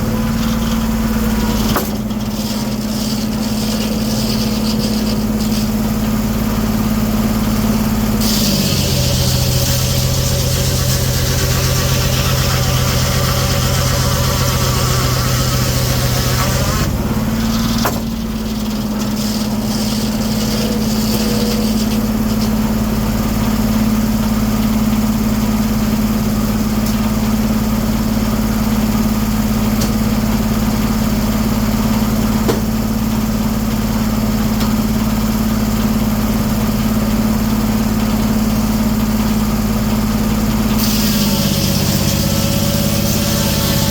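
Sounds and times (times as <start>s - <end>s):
sawmill running: 0.0s - 43.9s
circular saw cutting hiss: 8.2s - 17.8s, 40.8s - 43.9s.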